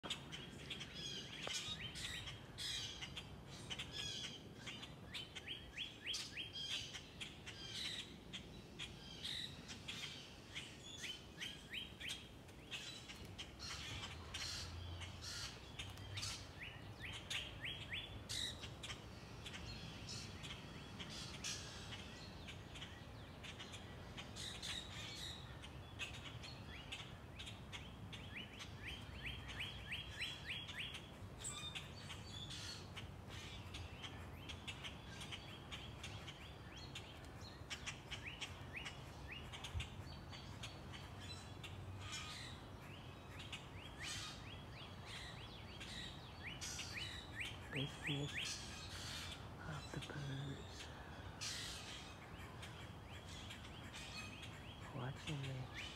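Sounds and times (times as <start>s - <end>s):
bird chirps and calls: 0.0s - 55.9s
songbird trill: 0.0s - 55.9s.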